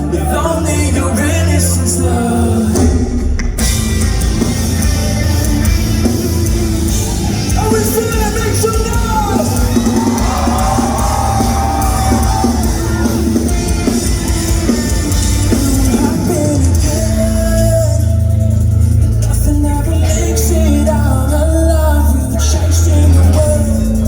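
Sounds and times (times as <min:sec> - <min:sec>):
distorted guitars: 0:00.0 - 0:24.0
heavy drums: 0:00.0 - 0:24.0
rock band playing loud: 0:00.0 - 0:24.0.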